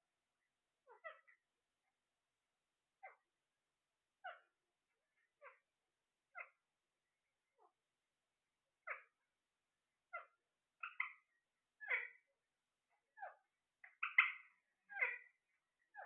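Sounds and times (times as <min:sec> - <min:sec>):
parrot calling: 0:00.8 - 0:01.4, 0:04.2 - 0:04.5, 0:06.3 - 0:06.6, 0:10.1 - 0:12.2, 0:13.2 - 0:16.0.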